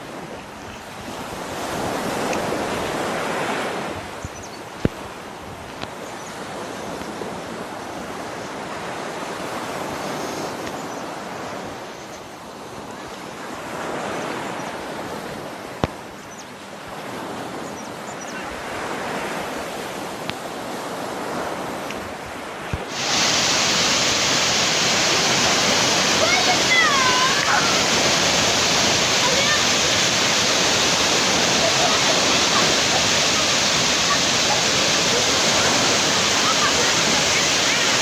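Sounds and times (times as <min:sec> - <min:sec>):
flowing water rushing: 0:00.0 - 0:10.0, 0:19.5 - 0:38.0
waterfall rushing close by: 0:22.9 - 0:38.0.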